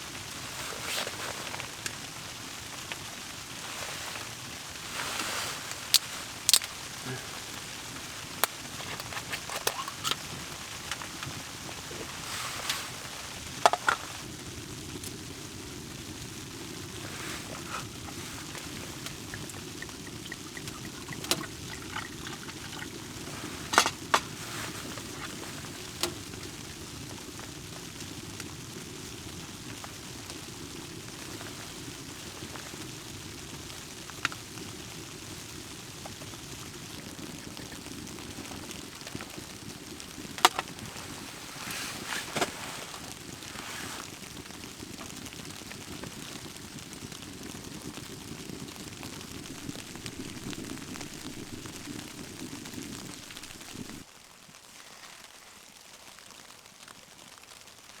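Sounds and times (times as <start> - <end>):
water running: 17.0 - 26.0, 49.3 - 54.0.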